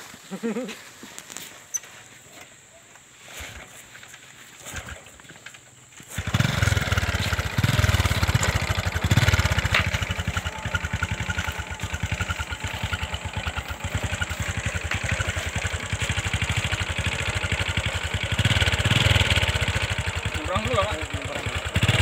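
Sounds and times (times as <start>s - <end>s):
motorcycle engine kick-started: 3.2s - 22.0s.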